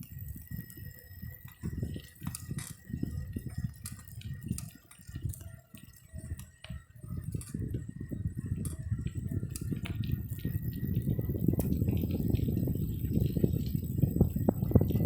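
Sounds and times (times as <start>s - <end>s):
small clicks and rattles: 0.0s - 15.0s
wind buffeting microphone: 0.0s - 15.0s.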